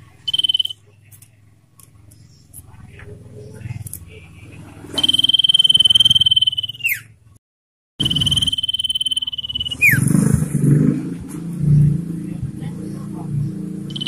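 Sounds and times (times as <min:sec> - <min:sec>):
bird trilled whistle: 0:00.2 - 0:00.8, 0:05.0 - 0:07.2, 0:08.0 - 0:10.2.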